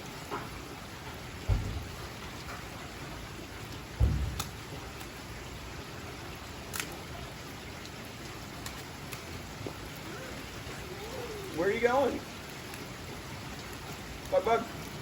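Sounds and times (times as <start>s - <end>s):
steady rain falling: 0.0s - 15.0s
dull low thump: 1.4s - 2.3s, 4.0s - 4.7s.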